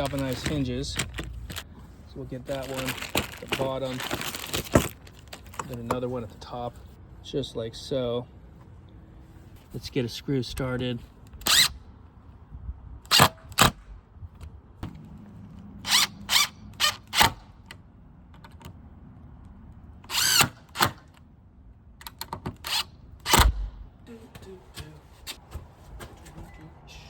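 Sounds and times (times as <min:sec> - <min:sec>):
power drill driving screws: 0:20.1 - 0:21.0.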